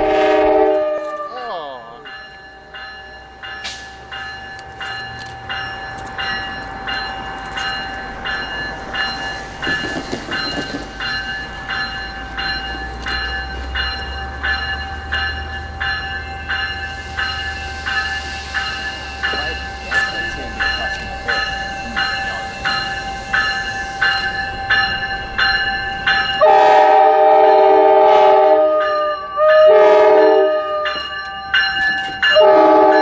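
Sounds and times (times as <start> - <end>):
train rumbling past: 0.0 - 33.0
ringing metallic strikes: 1.7 - 26.8.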